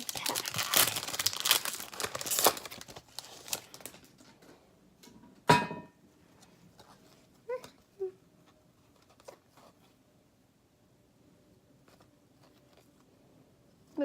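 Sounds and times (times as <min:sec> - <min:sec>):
foil wrapper crinkling: 0:00.0 - 0:04.2.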